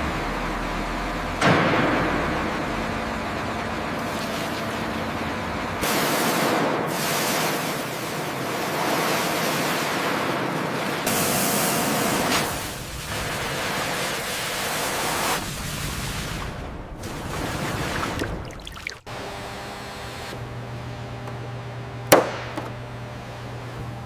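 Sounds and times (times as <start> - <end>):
steady rushing hiss: 10.7 - 16.4.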